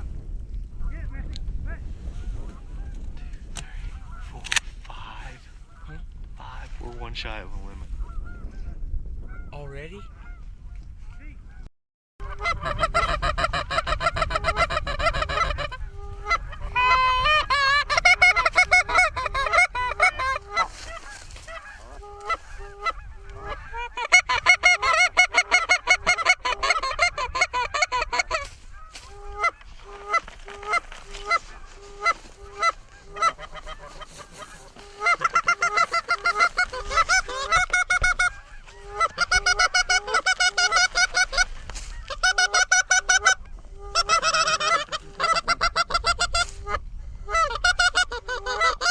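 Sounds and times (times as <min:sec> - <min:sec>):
geese honking and clucking: 0:02.2 - 0:48.9.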